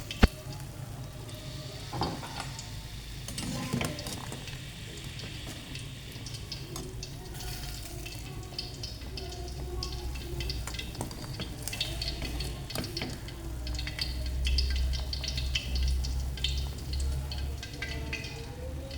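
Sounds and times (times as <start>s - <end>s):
food sizzling in a pan: 0.0s - 18.5s
light stirring: 2.2s - 18.9s.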